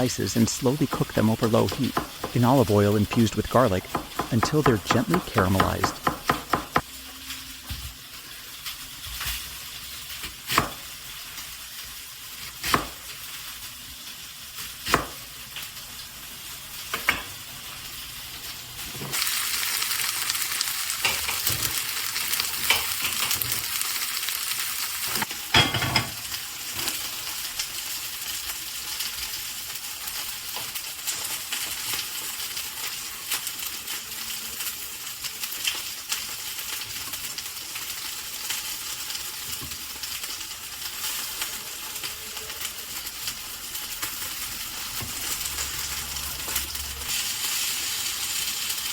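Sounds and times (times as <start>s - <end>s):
food sizzling in oil: 0.0s - 48.9s
utensil knocking against pan: 0.9s - 2.5s, 3.1s - 6.8s.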